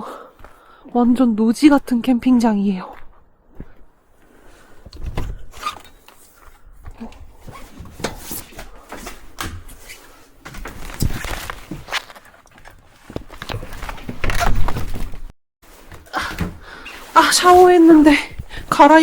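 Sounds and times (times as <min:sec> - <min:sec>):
footsteps on dirt road: 0:00.3 - 0:01.2, 0:02.8 - 0:03.9.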